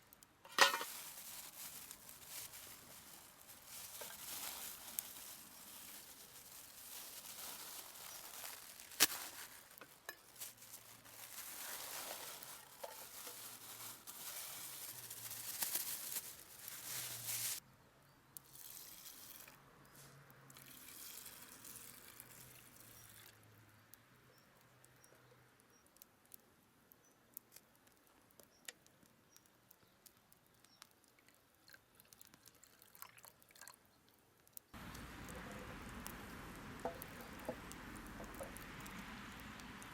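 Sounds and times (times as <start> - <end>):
food sizzling in a pan: 0.5 - 17.6.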